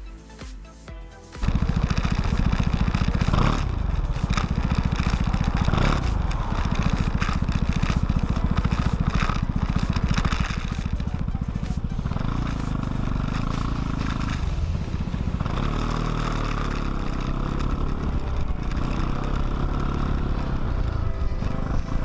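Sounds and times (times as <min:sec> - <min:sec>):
scooter engine running: 0:01.4 - 0:22.0.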